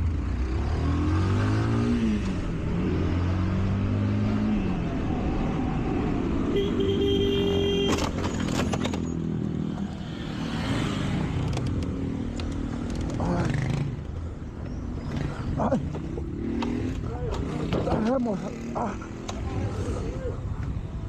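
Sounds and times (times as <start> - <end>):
motorcycle engine revving: 0.0 - 20.2
horn sounding: 6.5 - 8.1.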